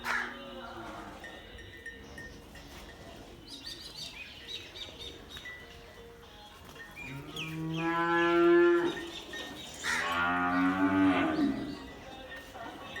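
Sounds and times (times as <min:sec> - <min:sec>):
cattle mooing: 0:09.8 - 0:11.9.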